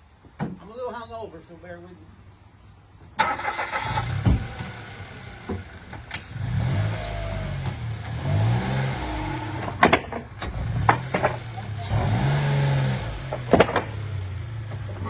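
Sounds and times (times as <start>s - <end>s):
clunks: 3.1s - 15.0s
car engine revving: 3.2s - 15.0s.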